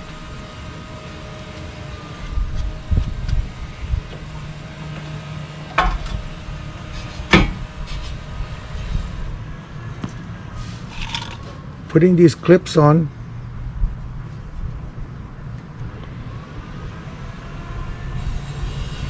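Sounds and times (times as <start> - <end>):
low workshop rumble: 0.0 - 11.9.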